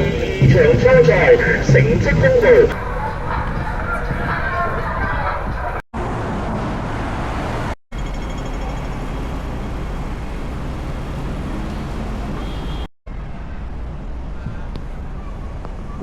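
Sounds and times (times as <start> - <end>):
city background rumble: 0.0 - 16.0.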